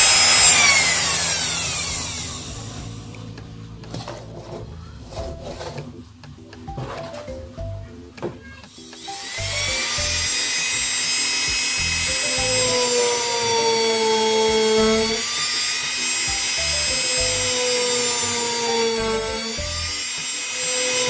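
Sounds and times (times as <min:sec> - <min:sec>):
electric drill motor whine: 0:00.0 - 0:03.2, 0:09.0 - 0:21.0.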